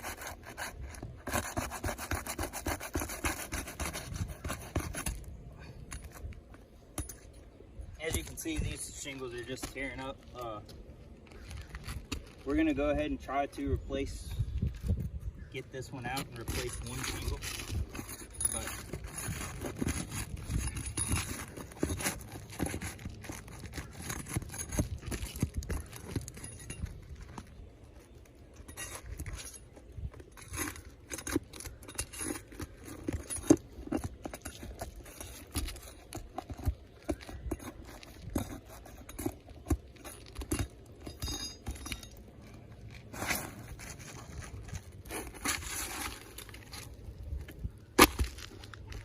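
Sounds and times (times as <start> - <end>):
scraping and knocking on roof shingle: 0.0 - 5.4, 16.0 - 42.1, 43.0 - 49.0.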